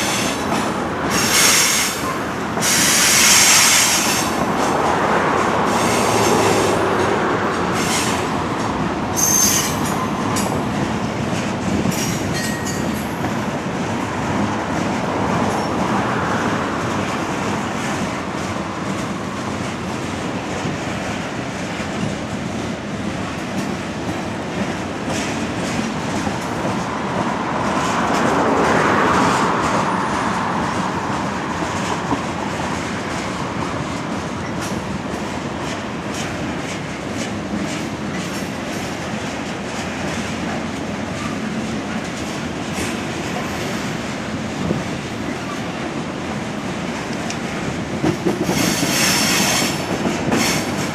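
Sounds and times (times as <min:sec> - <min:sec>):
freight train wheels clacking: 0:00.0 - 0:50.9
high wheel squeals: 0:09.2 - 0:10.5.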